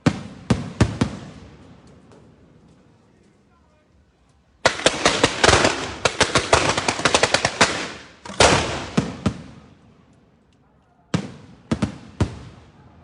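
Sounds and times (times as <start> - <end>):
fireworks bangs: 0.0 - 3.0, 4.6 - 9.8, 11.1 - 13.0.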